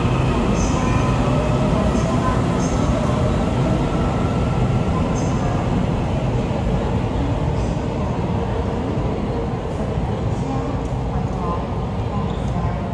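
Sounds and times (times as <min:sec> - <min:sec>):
electric train departing: 0:00.0 - 0:10.1.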